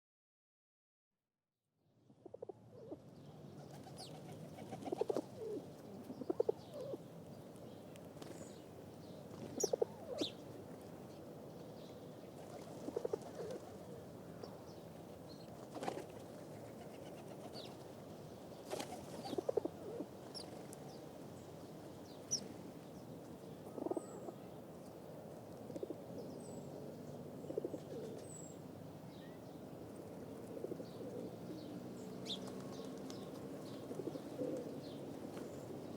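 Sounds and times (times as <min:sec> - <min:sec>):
pigeons cooing: 0:03.7 - 0:07.0, 0:09.4 - 0:10.3, 0:12.4 - 0:14.0, 0:18.8 - 0:20.6, 0:23.7 - 0:24.4, 0:27.4 - 0:28.3, 0:30.4 - 0:31.6, 0:33.7 - 0:35.0.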